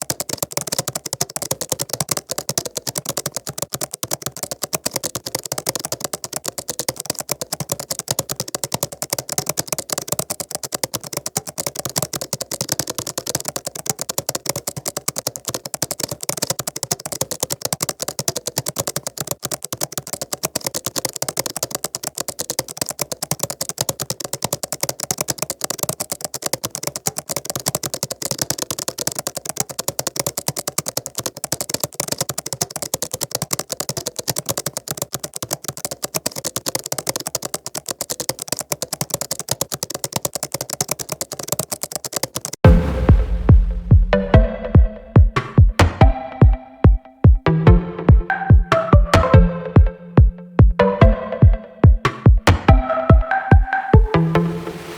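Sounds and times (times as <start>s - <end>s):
keyboard typing: 0.0s - 54.9s.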